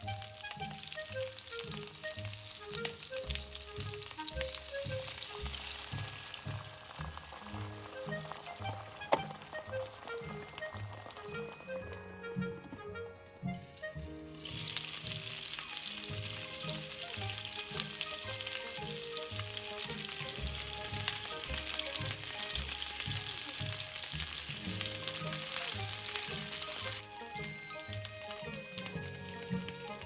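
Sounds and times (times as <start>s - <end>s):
peppers sizzling in a frying pan: 0.0s - 12.9s, 13.5s - 30.0s
soft background music: 0.0s - 30.0s.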